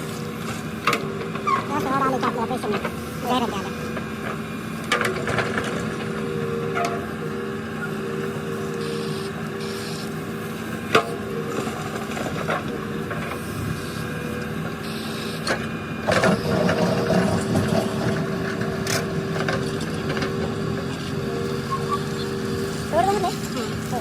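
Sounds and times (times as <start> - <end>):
rumbling and clatter: 0.0 - 8.4, 15.5 - 24.0
diesel engine running: 0.0 - 24.0.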